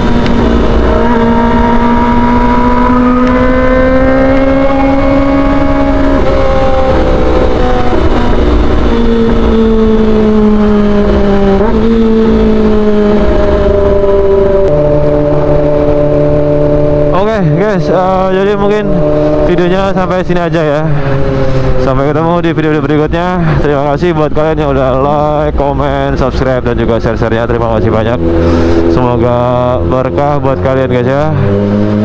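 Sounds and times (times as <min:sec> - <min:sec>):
motorcycle engine at high revs: 0:00.0 - 0:32.0.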